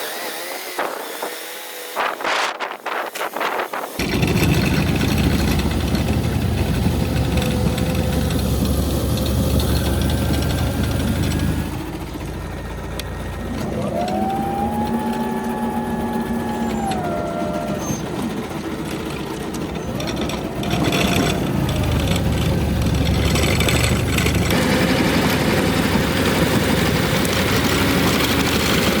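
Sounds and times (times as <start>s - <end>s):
electric tractor churning hum: 0.0s - 29.0s
rising and falling whine: 4.0s - 28.7s.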